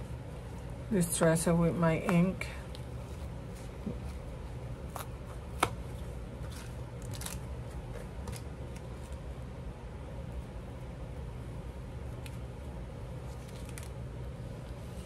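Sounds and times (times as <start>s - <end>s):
low steady hum: 0.0s - 15.0s
paper and craft supplies handled: 3.0s - 9.2s, 13.2s - 14.0s.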